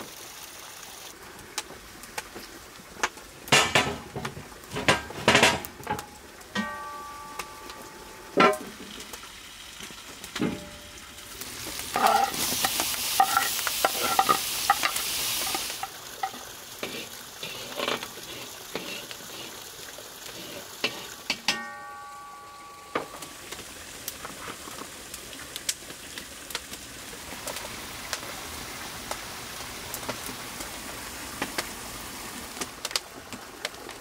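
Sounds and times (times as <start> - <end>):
food sizzling in a pan: 0.0 - 34.0
metal utensil clinking on pan: 3.5 - 8.8, 11.9 - 17.0, 20.8 - 23.3.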